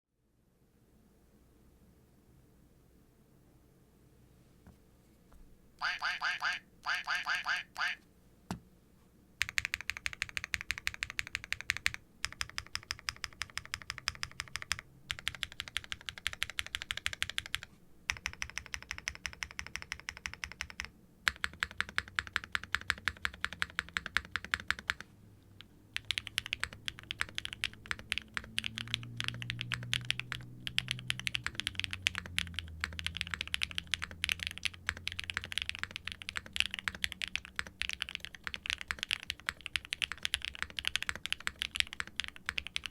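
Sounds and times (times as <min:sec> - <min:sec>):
mechanical keyboard typing: 0:09.4 - 0:25.0, 0:26.0 - 0:42.9.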